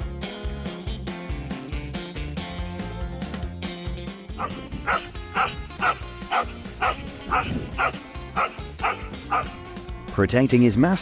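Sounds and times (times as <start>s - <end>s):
background music: 0.0s - 11.0s
dog barking: 4.4s - 9.6s.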